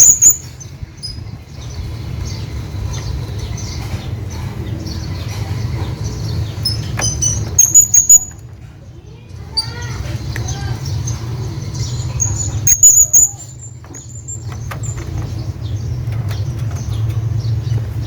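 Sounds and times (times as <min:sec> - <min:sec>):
parrot calling: 0:00.0 - 0:00.5, 0:06.6 - 0:08.4, 0:09.5 - 0:13.5
steady low rumble: 0:00.0 - 0:18.0.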